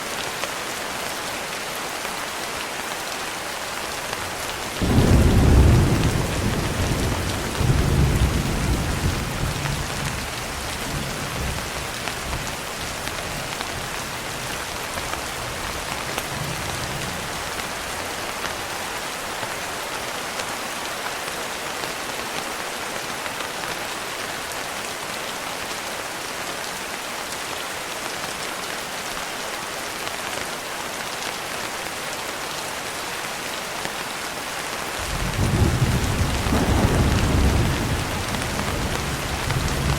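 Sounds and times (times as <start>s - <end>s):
steady rain: 0.0s - 39.9s
thunder rumbling: 35.0s - 39.9s.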